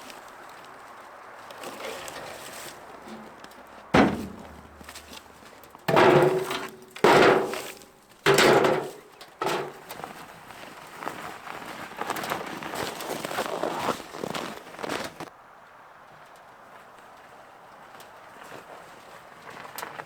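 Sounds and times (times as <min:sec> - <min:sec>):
wood pieces knocking together: 0:03.0 - 0:05.2, 0:05.9 - 0:09.8.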